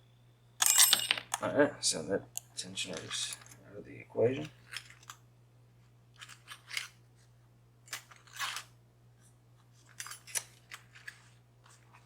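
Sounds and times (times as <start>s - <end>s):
metal lock picks clicking and scraping: 0.6s - 1.4s, 9.9s - 11.2s.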